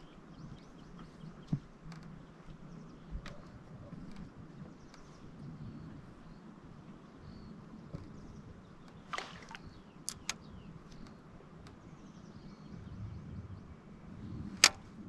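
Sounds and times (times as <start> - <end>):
sharp clicks and knocks: 10.1 - 11.8, 14.6 - 14.9.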